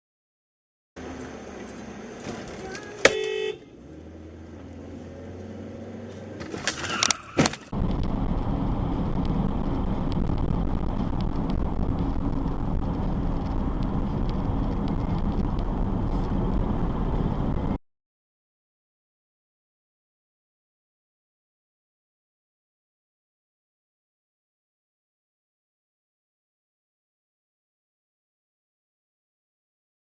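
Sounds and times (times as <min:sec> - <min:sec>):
loud road noise: 0:01.0 - 0:17.8
low engine hum: 0:01.0 - 0:17.8.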